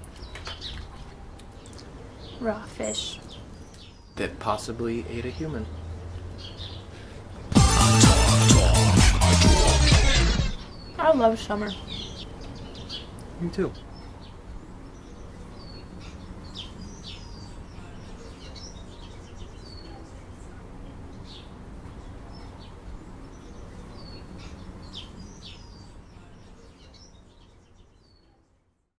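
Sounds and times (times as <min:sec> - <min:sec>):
small birds chirping: 0:00.0 - 0:07.8, 0:09.6 - 0:28.9
low outdoor background noise: 0:00.0 - 0:07.9, 0:09.7 - 0:29.0.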